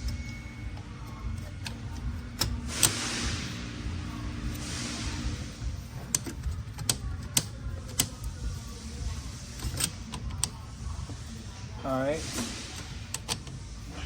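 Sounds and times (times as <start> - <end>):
low shop hum: 0.0 - 14.0
metal parts clicking and clinking: 9.4 - 10.6.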